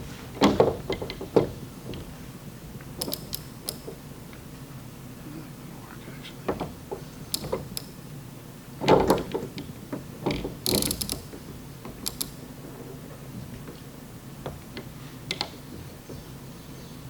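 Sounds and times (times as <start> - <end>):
metal clicks and knocks: 3.0 - 4.0, 6.5 - 8.0.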